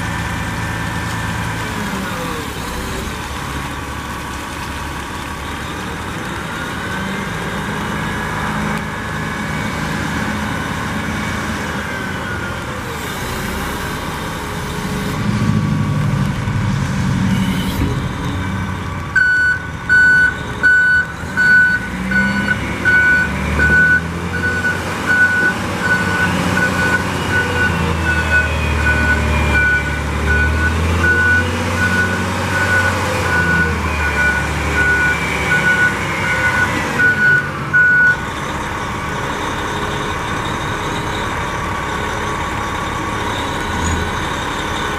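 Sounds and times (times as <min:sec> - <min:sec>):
diesel engine running: 0:00.0 - 0:44.9
reversing alarm beeping: 0:19.2 - 0:38.3.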